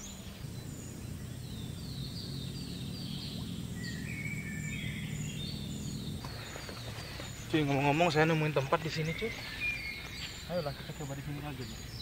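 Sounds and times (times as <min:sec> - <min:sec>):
low rumble: 0:00.0 - 0:08.5
birds chirping: 0:00.0 - 0:12.0.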